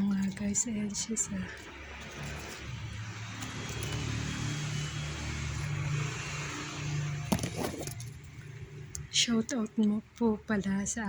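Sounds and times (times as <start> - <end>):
vehicle passing by: 0.8 - 9.1.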